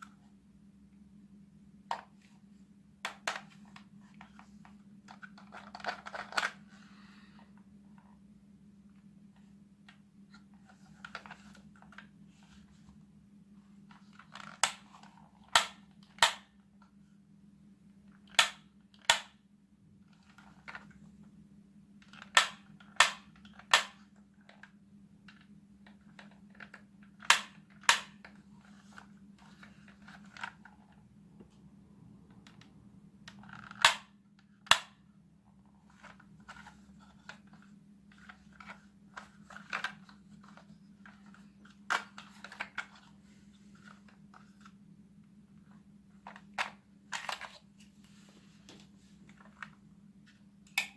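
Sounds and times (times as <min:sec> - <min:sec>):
plastic clicks and handling: 0:03.0 - 0:06.6, 0:35.9 - 0:43.1.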